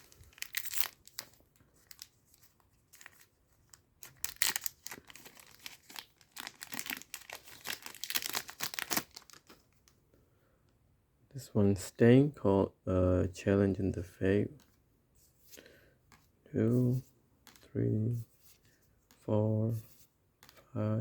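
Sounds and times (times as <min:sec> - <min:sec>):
foil pack tearing and crinkling: 0:00.0 - 0:02.1, 0:04.0 - 0:09.6.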